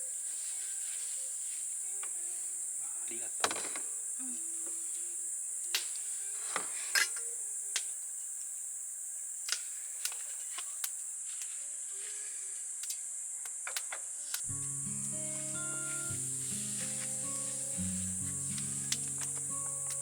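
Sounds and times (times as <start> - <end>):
insects chorus: 0.0 - 20.0
background music: 14.5 - 20.0.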